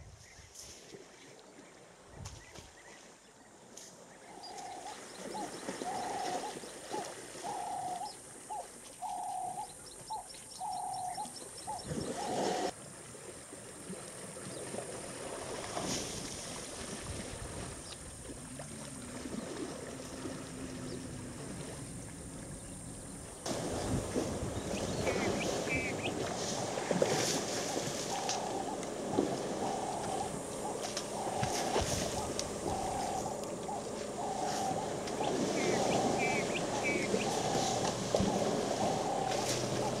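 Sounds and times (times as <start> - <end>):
bird calling: 4.1 - 12.7, 22.6 - 40.0
faint low hum: 18.2 - 40.0.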